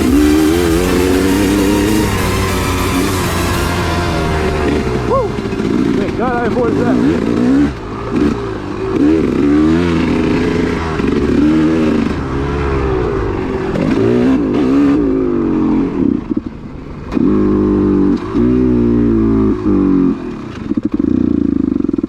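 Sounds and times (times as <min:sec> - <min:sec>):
two-stroke engine revving: 0:00.0 - 0:22.0.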